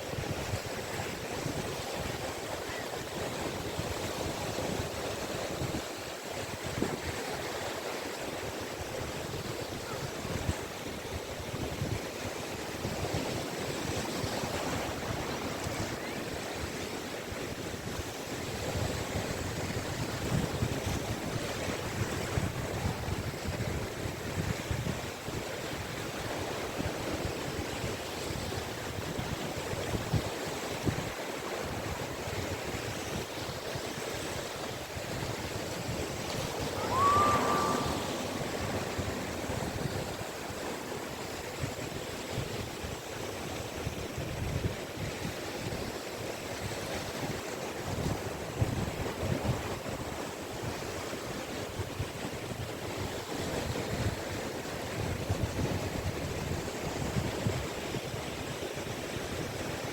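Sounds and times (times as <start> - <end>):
sea waves washing onto beach: 31.0 - 44.0.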